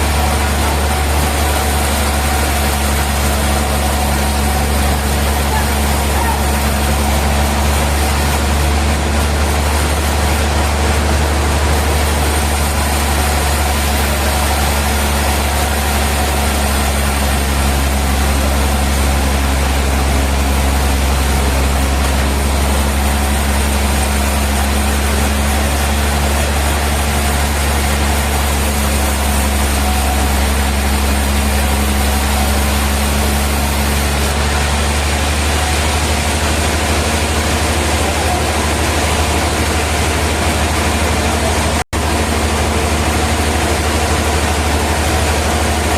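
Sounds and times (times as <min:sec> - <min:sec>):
sawmill machinery drone: 0:00.0 - 0:45.9.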